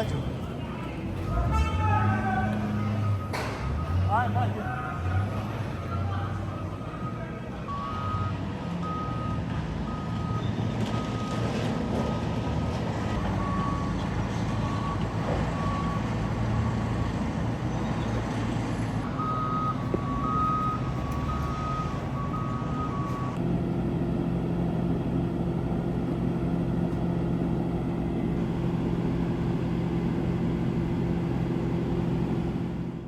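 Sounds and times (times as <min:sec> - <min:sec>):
bulldozer diesel engine rumbling: 0:00.0 - 0:33.0
reversing alarm beeps: 0:00.4 - 0:12.2, 0:13.2 - 0:14.0, 0:14.6 - 0:16.8, 0:19.0 - 0:23.4.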